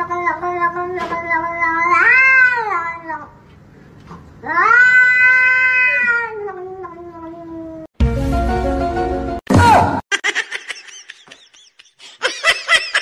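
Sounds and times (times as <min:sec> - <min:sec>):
cat meowing: 0:01.3 - 0:03.3, 0:04.4 - 0:07.9.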